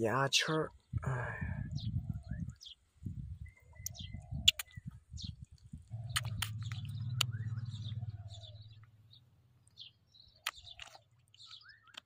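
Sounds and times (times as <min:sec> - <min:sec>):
small birds chirping: 0:00.0 - 0:12.0
sharp clicks: 0:03.8 - 0:04.8, 0:06.0 - 0:07.5.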